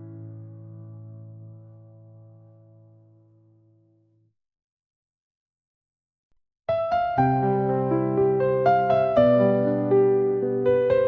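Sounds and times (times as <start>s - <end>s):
slow soft piano music: 0.0s - 4.2s, 6.7s - 11.0s.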